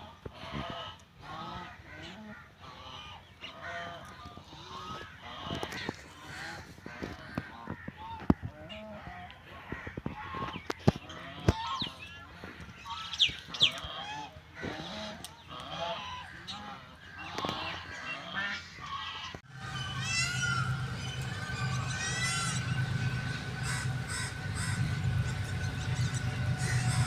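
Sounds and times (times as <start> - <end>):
birds chirping: 0.1 - 27.0
steady low hum: 19.4 - 27.0.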